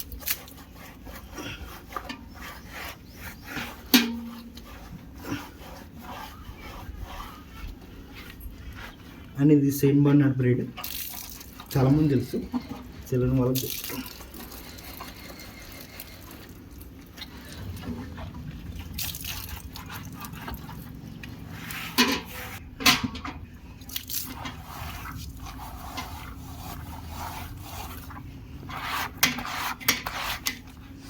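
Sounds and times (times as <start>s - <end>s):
wet squishing and dripping: 10.8s - 11.9s, 12.5s - 22.0s, 23.6s - 28.2s.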